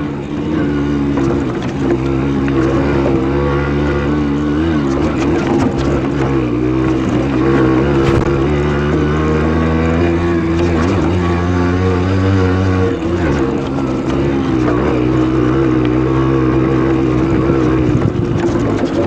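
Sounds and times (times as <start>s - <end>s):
moped engine revving: 0.0s - 19.0s.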